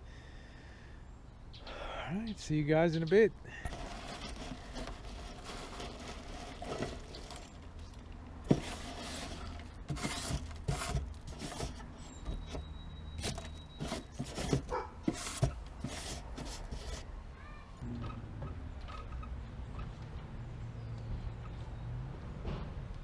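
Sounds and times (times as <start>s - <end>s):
hands clearing leaves from gutter: 3.5s - 12.0s, 13.2s - 17.1s.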